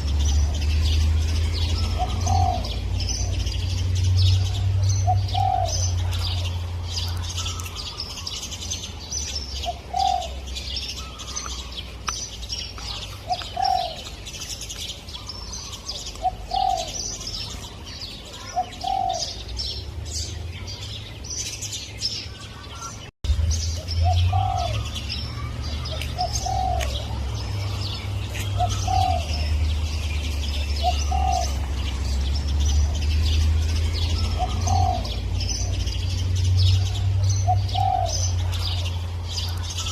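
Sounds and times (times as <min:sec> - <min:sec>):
small birds chirping: 0:00.0 - 0:39.9
dove cooing: 0:01.6 - 0:03.7, 0:04.3 - 0:08.4, 0:09.5 - 0:11.8, 0:12.8 - 0:14.2, 0:15.1 - 0:19.5, 0:24.0 - 0:32.1, 0:34.0 - 0:36.0, 0:36.6 - 0:39.9.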